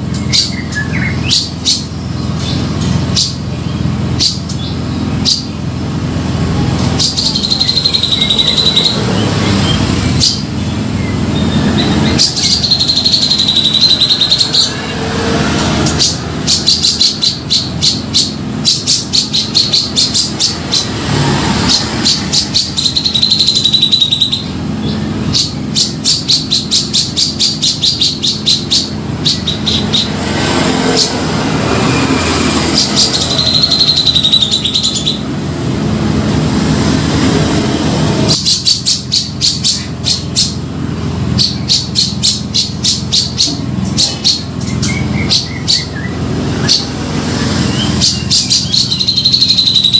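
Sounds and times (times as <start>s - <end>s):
bird singing wavering high notes: 0.0s - 49.9s
bird rapid sharp chattering: 6.7s - 35.2s, 38.3s - 40.7s, 41.3s - 49.9s.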